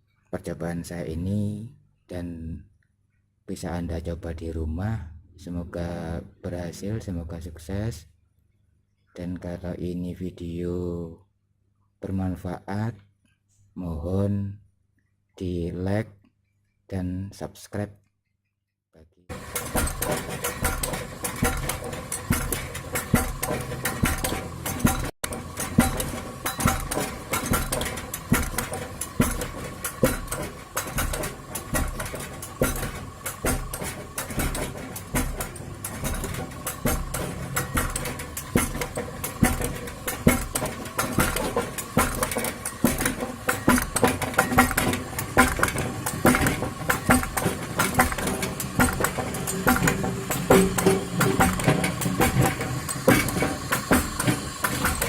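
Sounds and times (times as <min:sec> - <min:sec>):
motor and gearbox humming: 0:19.3 - 0:55.0
pounding machine clattering: 0:19.3 - 0:55.0.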